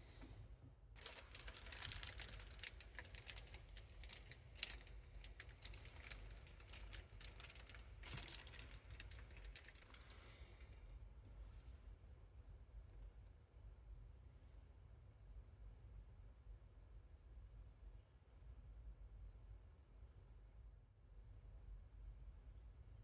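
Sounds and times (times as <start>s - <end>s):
plastic bags crinkling: 1.0s - 10.4s.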